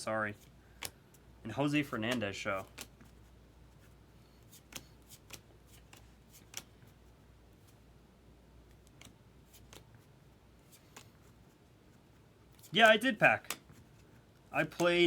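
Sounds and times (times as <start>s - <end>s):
cards being flipped through: 0.4s - 1.0s, 1.8s - 7.0s, 8.7s - 11.6s, 12.5s - 15.0s.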